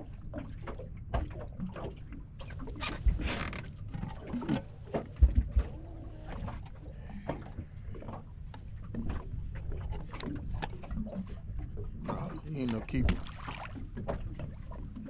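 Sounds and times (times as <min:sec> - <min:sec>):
heavy thumps in boat: 0:02.8 - 0:05.8.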